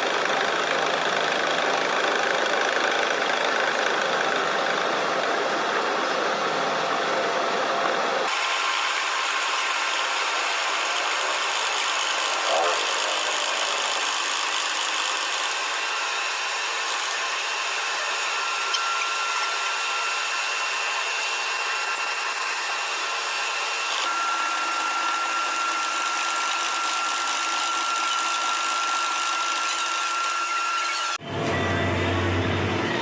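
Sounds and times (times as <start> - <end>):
milling machine whining: 0.0 - 33.0
low hum: 31.2 - 33.0.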